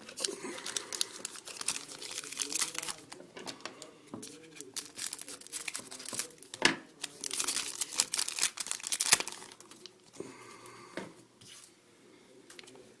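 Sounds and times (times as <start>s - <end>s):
wrapper crinkling and tearing: 0.0s - 3.6s, 4.2s - 10.0s.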